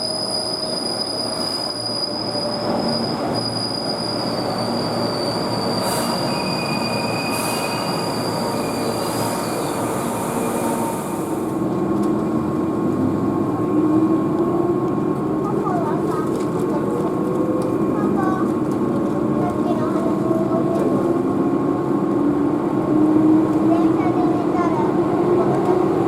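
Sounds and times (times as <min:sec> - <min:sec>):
high-pitched wheel squeal: 0:00.0 - 0:11.2
train running rumble: 0:04.2 - 0:26.0.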